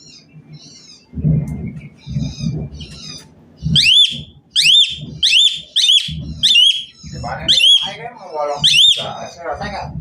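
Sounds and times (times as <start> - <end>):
low muffled sounds: 0.3 - 10.0
starling chattering: 1.7 - 9.8
loud whistled bird notes: 3.7 - 8.0, 8.6 - 9.3.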